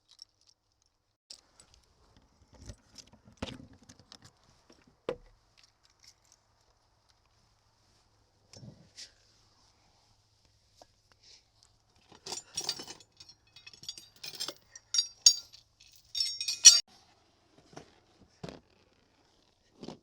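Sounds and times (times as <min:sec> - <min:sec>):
hard objects clinking and rattling: 0:12.2 - 0:16.8.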